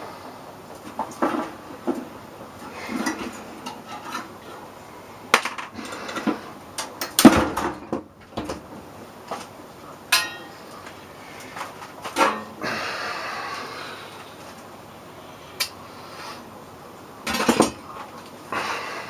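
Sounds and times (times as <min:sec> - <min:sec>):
metal tools clanking: 0:10.1 - 0:10.6.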